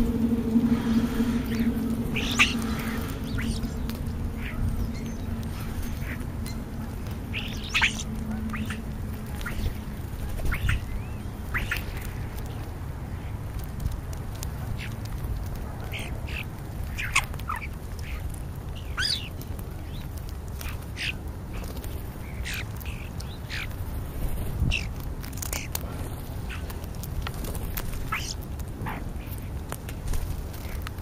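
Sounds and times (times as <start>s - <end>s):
starlings calling: 0.0s - 13.3s, 15.9s - 23.8s, 28.0s - 29.3s
steady low rumble: 0.0s - 31.0s.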